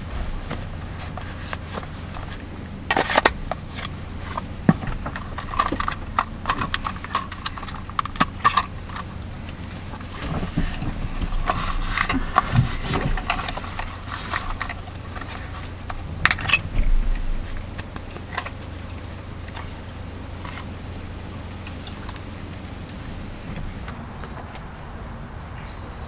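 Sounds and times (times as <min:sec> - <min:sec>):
steady low hum: 0:00.0 - 0:26.0
objects knocking and rattling: 0:00.4 - 0:09.1, 0:09.9 - 0:18.9.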